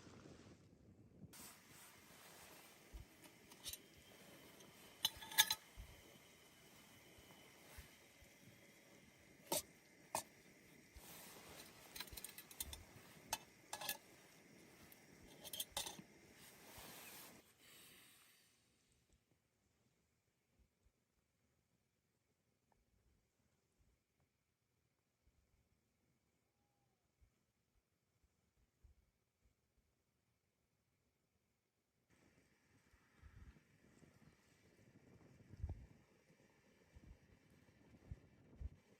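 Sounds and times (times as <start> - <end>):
soft rustling: 1.4 - 8.2, 11.0 - 17.8.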